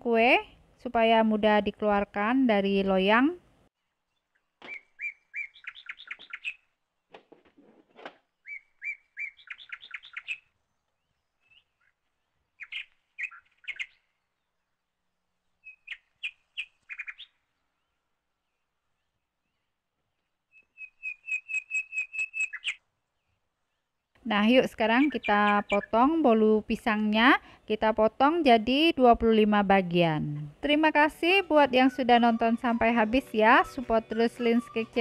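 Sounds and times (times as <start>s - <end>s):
bird chirping: 4.0s - 6.8s, 8.3s - 14.8s, 15.4s - 24.0s, 24.8s - 26.2s.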